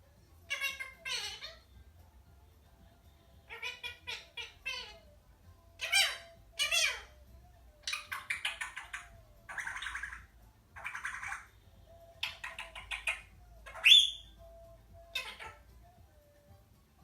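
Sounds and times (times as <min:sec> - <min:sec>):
parrot call: 0:00.4 - 0:01.8, 0:03.4 - 0:05.2, 0:05.8 - 0:16.4
parrot chattering: 0:00.5 - 0:01.7, 0:03.4 - 0:05.1, 0:05.8 - 0:07.2, 0:07.8 - 0:14.4, 0:15.0 - 0:15.7
parrot squawk: 0:00.5 - 0:01.7, 0:03.4 - 0:05.1, 0:05.8 - 0:07.2, 0:07.8 - 0:11.5, 0:12.1 - 0:14.4, 0:15.0 - 0:15.7.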